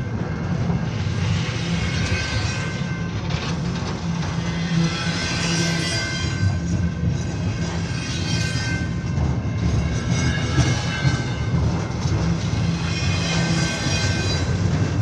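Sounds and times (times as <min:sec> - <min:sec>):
train passing on tracks: 0:00.0 - 0:15.0.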